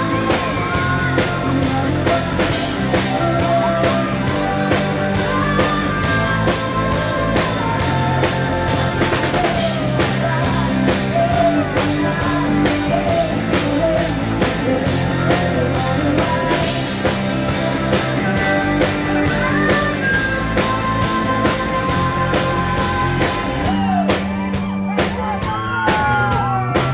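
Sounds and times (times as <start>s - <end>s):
drum kit beat: 0.0s - 26.9s
rock band playing: 0.0s - 26.9s.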